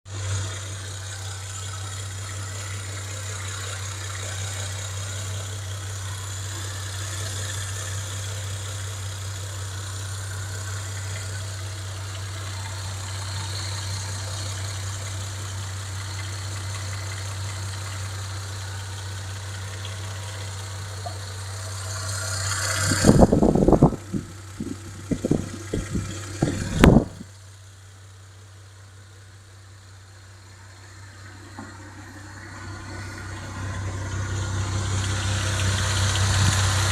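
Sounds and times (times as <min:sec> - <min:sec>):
car engine running: 0:00.0 - 0:36.9
loud low thumps: 0:23.0 - 0:27.3.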